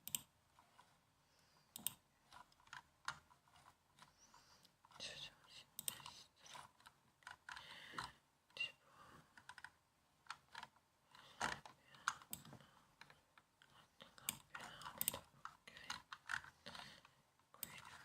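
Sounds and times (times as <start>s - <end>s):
laptop keyboard typing: 1.7s - 4.2s, 5.8s - 8.2s, 14.2s - 18.0s.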